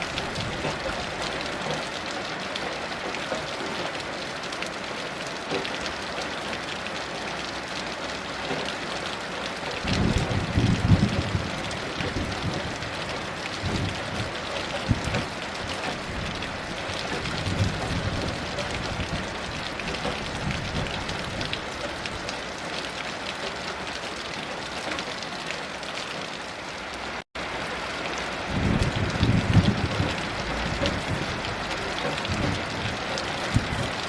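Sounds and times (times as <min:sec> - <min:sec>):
heavy rain pattering: 0:00.0 - 0:34.0
distant thunder rumbling: 0:09.8 - 0:21.6, 0:28.4 - 0:34.0.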